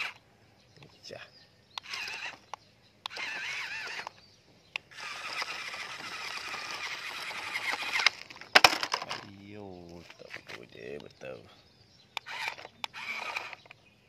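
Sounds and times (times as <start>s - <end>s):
birds chirping and trilling: 0.0s - 14.0s
plastic toy trucks clicking: 1.8s - 4.2s, 4.8s - 9.4s, 12.2s - 13.8s.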